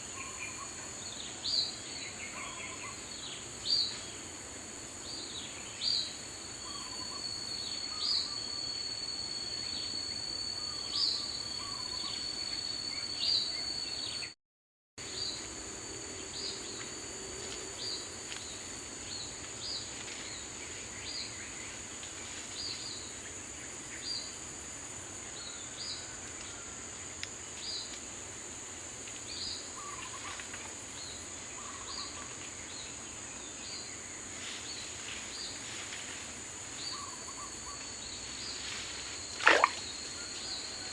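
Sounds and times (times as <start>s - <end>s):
insects droning: 0.0s - 14.4s, 15.0s - 40.9s
thin high whistle: 6.6s - 14.2s.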